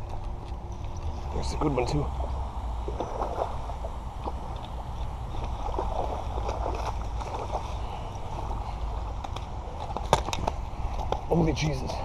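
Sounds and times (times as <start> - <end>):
steady low rumble: 0.0 - 12.0
fish splashing in water: 5.3 - 10.6.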